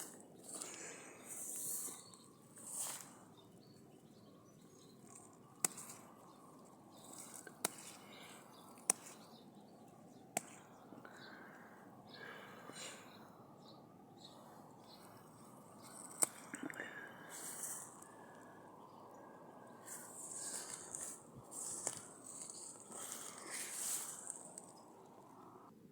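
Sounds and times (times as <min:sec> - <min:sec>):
soft rustling: 0:00.0 - 0:10.7, 0:19.7 - 0:25.4
sharp single clicks: 0:08.8 - 0:09.3.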